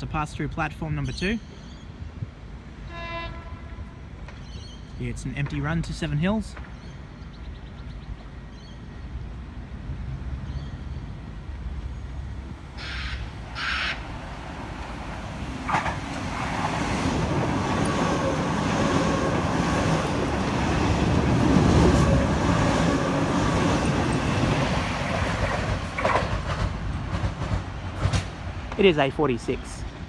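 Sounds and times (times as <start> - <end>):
electric train passing: 8.2 - 30.0.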